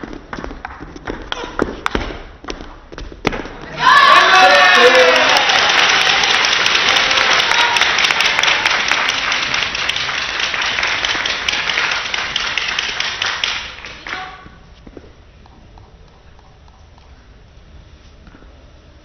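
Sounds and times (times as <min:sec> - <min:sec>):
audience applauding: 0:03.8 - 0:14.3.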